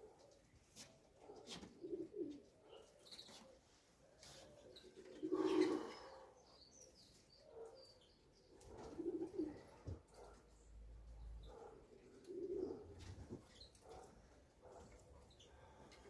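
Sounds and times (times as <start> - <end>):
small birds chirping faintly: 0.0 - 16.0
pigeons cooing: 1.6 - 3.4, 4.3 - 6.4, 8.5 - 10.4, 11.4 - 13.2.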